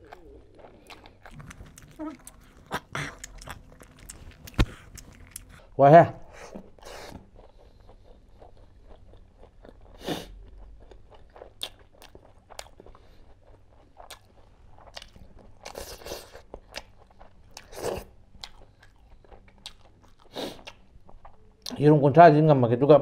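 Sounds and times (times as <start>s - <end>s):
wet chewing clicks and smacks: 0.0s - 5.7s, 6.8s - 21.8s
person chewing food: 0.0s - 21.8s.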